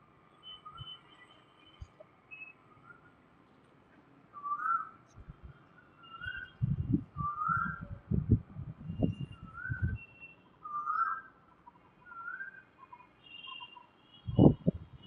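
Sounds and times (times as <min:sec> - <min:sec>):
bird whistling rising notes: 0:06.0 - 0:08.0, 0:08.8 - 0:11.3.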